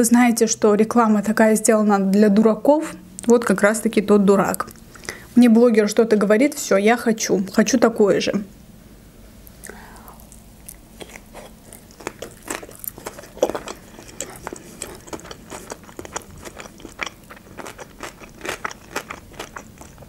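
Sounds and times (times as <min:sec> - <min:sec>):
person chewing food: 0:09.4 - 0:20.0.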